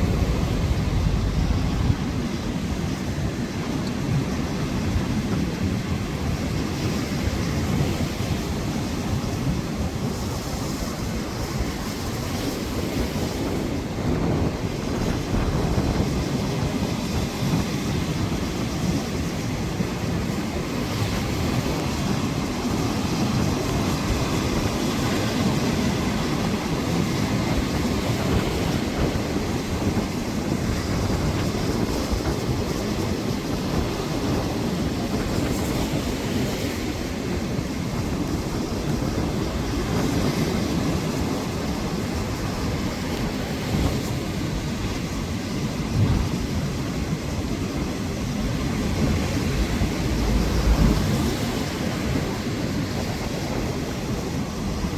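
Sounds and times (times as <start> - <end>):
wind buffeting microphone: 0.0 - 54.9
surf: 31.0 - 54.9.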